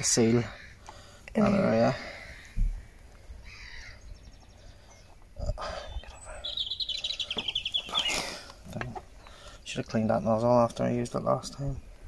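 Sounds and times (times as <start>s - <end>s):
small bird trilling: 6.0s - 8.4s.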